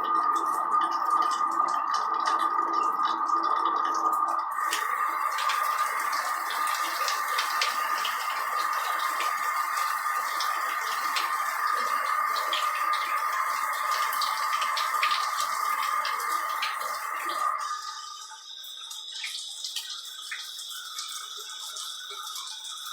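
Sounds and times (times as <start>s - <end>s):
water splashes and drips: 0.0s - 22.9s
water spraying from shower head: 4.6s - 17.8s.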